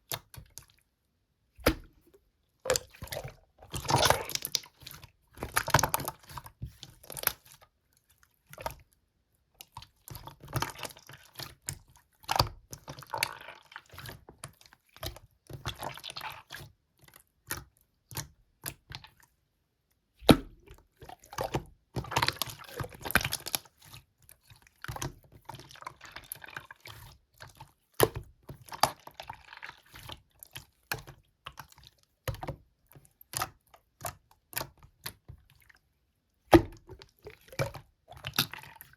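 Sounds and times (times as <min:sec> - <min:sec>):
slime squishing with wet clicks: 0:00.0 - 0:38.9.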